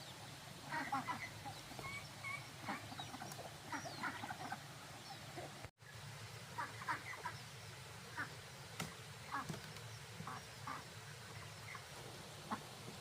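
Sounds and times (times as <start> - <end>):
low background noise: 0.0 - 13.0
poultry clucking and quacking: 0.6 - 5.7, 6.6 - 7.4, 8.1 - 8.4, 9.2 - 9.6, 10.2 - 13.0.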